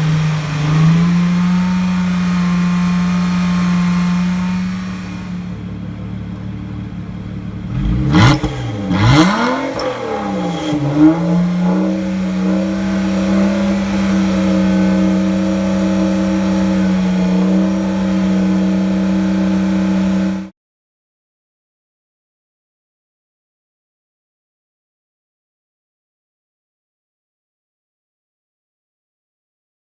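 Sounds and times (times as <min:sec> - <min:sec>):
car engine idling and revving: 0:00.0 - 0:20.5.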